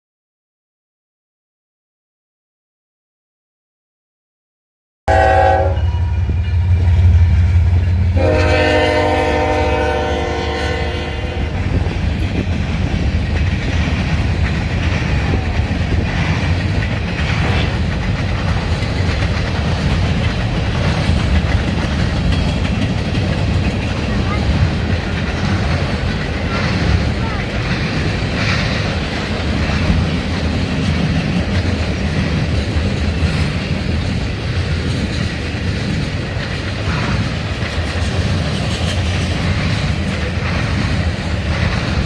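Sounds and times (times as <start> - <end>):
locomotive horn blasts: 5.1 - 6.7, 8.1 - 11.6
passing train rattling: 5.1 - 42.0
locomotive engine rumble: 5.5 - 42.0.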